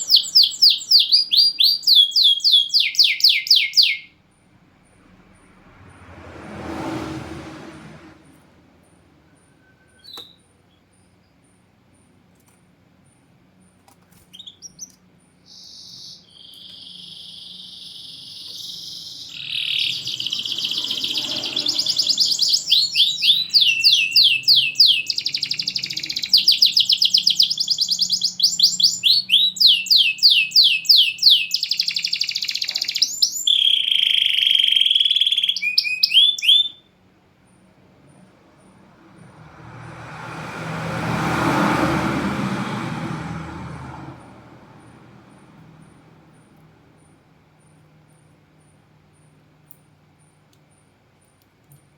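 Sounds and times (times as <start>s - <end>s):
canary singing trills: 0.0s - 5.1s, 8.9s - 12.2s, 13.1s - 39.3s.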